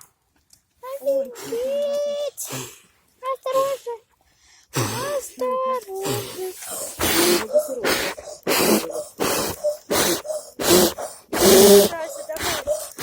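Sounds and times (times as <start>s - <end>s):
person breathing hard: 4.3s - 5.2s, 6.0s - 13.0s.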